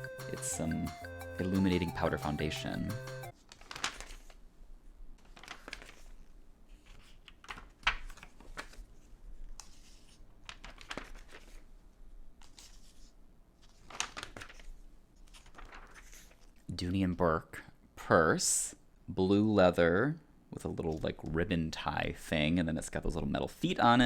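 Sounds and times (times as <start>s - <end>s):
magazine pages rustling: 3.3s - 4.4s, 5.2s - 16.7s.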